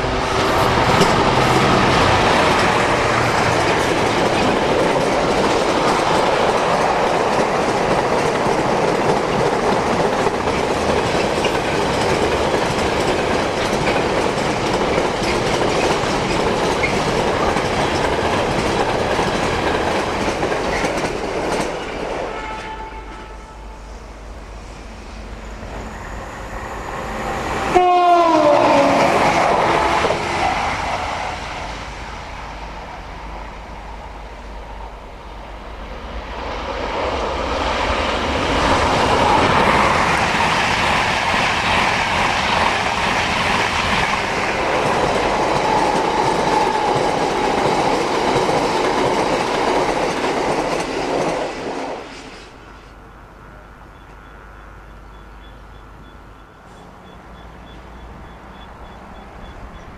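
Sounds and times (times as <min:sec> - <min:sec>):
express train rushing past: 0:00.0 - 0:59.9
locomotive horn blast: 0:22.2 - 0:24.0, 0:25.9 - 0:30.3, 0:53.4 - 0:55.0.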